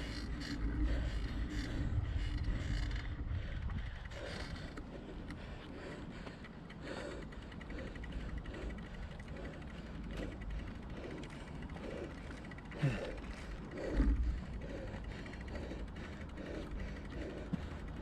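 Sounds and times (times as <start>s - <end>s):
wind rumble on microphone: 0.0s - 6.0s
bicycle drivetrain ticking and creaking: 0.0s - 18.0s.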